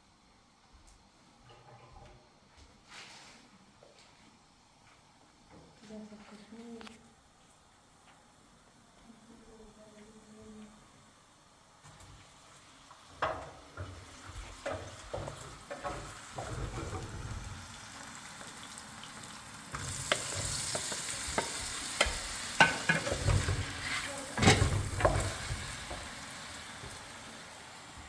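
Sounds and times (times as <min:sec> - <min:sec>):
steady hiss: 0:06.1 - 0:28.0.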